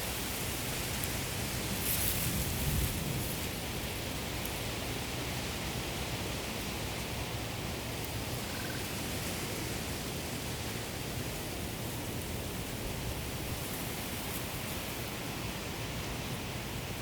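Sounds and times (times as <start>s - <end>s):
wind rustling through rice: 0.0s - 17.0s.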